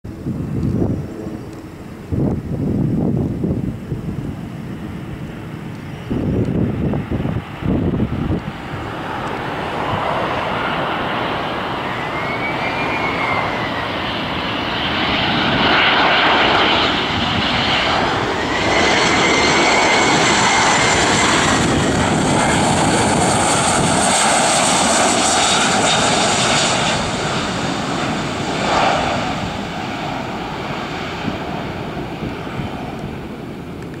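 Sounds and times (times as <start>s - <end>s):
jet engines passing: 0.1s - 34.0s
wind buffeting microphone: 0.1s - 34.0s.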